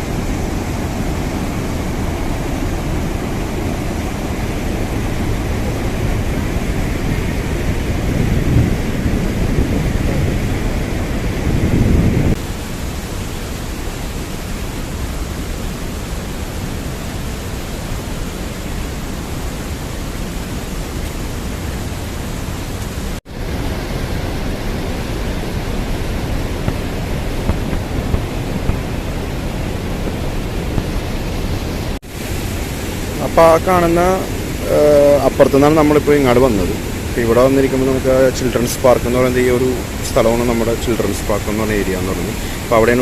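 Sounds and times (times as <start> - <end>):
wind rumble on microphone: 0.0 - 33.2
river water rushing: 0.0 - 43.0.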